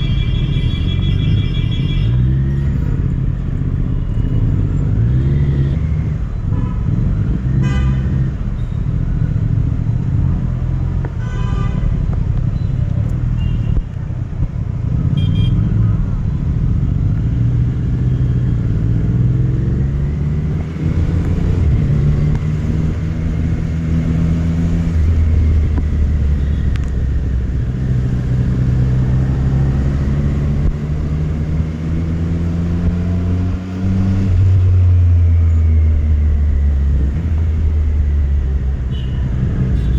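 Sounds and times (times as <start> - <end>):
horn toots: 15.1 - 15.8, 38.9 - 39.9.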